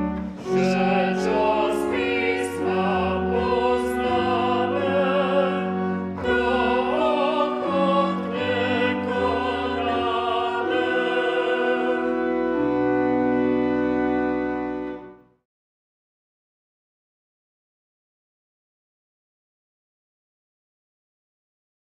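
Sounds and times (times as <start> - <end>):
church hymn singing: 0.0 - 15.2
organ-like accompaniment: 0.0 - 15.4.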